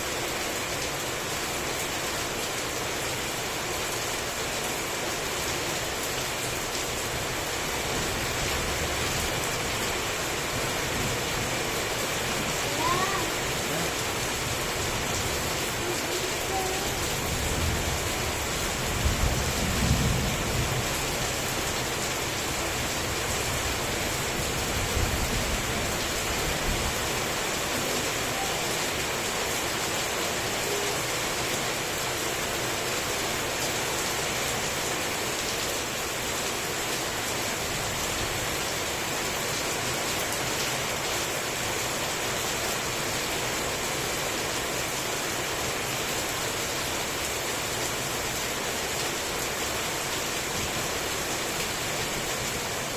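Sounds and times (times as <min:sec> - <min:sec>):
heavy rain falling: 0:00.0 - 0:52.9
low thunder rumbles: 0:17.3 - 0:21.1.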